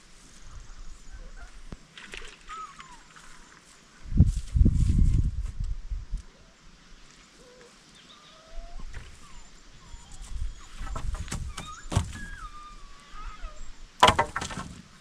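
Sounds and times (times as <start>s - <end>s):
thin whistled animal calls: 2.4s - 3.5s, 7.4s - 13.8s
knocks: 10.8s - 12.3s, 14.0s - 14.8s.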